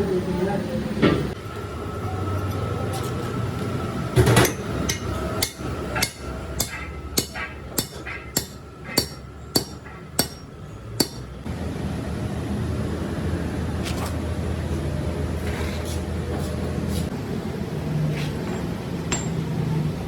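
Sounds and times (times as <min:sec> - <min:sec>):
hammer striking metal: 0:04.2 - 0:11.3, 0:18.5 - 0:19.4.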